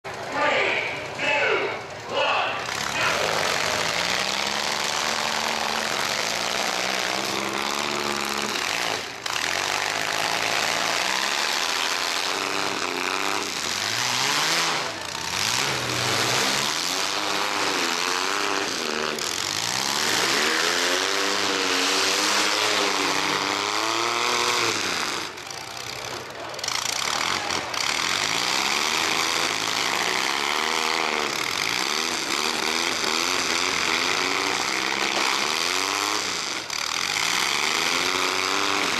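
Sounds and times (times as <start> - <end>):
truck engines revving: 0.0 - 38.9
loud rush of noise: 0.1 - 12.2.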